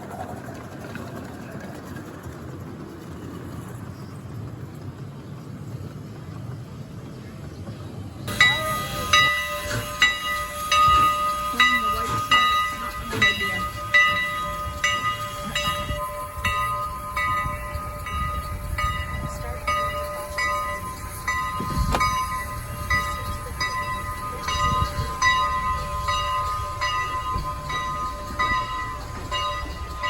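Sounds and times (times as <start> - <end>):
low rumble of train: 0.0 - 30.0
locomotive bell ringing: 8.3 - 30.0.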